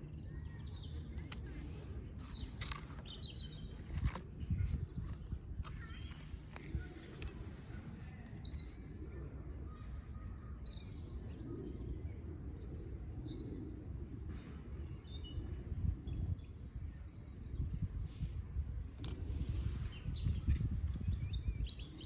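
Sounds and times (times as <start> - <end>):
birds chirping: 0.0 - 13.9.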